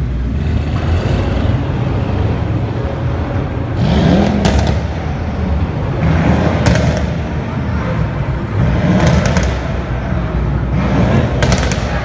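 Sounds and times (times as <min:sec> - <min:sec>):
sports car engines rumbling: 0:00.0 - 0:12.0
car engine revving: 0:03.6 - 0:07.5, 0:08.4 - 0:09.6.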